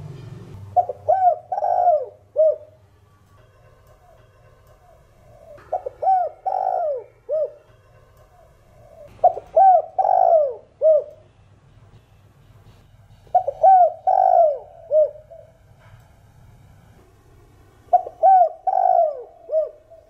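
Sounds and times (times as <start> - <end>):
dove cooing: 0.7 - 2.8, 3.9 - 11.2, 13.3 - 15.6, 17.9 - 20.0.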